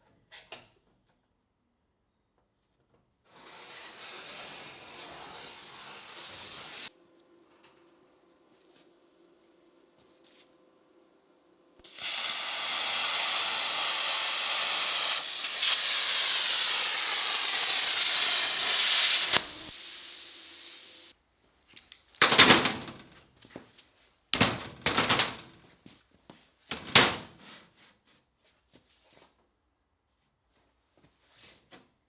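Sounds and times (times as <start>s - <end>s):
welding crackling bursts: 11.8s - 21.1s, 24.4s - 25.6s
welding hiss: 11.8s - 21.1s.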